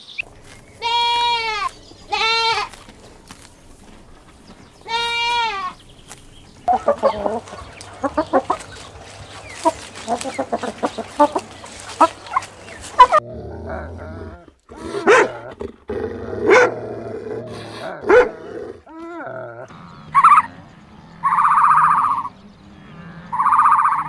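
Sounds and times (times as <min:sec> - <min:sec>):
chickens clucking: 0:00.0 - 0:13.2, 0:19.7 - 0:22.4, 0:23.2 - 0:24.0
goat bleating: 0:00.8 - 0:02.9, 0:04.8 - 0:05.8, 0:06.6 - 0:13.2
dogs barking: 0:06.7 - 0:13.3, 0:14.8 - 0:15.6, 0:16.4 - 0:18.5.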